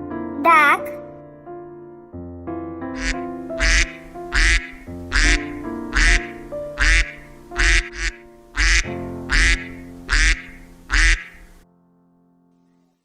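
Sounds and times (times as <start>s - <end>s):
background music: 0.0s - 11.6s
duck quacking: 3.0s - 11.6s.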